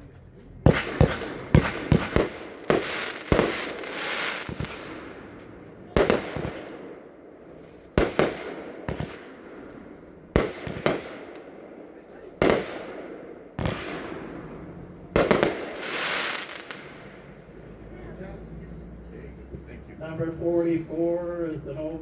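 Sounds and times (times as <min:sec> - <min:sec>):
firework bangs with hiss: 0:00.6 - 0:07.0, 0:07.6 - 0:11.5, 0:12.2 - 0:17.1.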